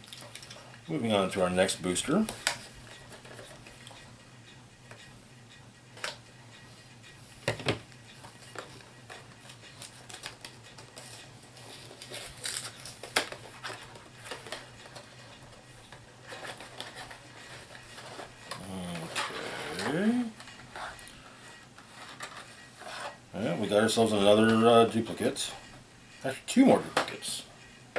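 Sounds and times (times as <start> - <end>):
packaging rustling: 11.8 - 14.6.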